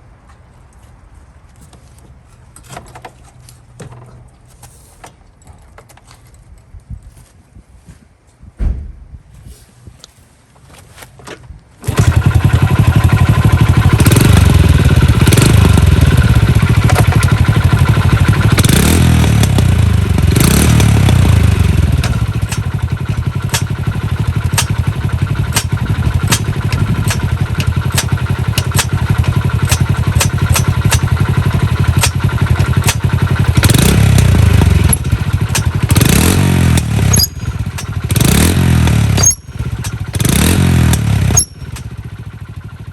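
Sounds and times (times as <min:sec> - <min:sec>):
sharp engine clicks: 0:11.8 - 0:42.9
small motorcycle engine revving: 0:11.8 - 0:42.9.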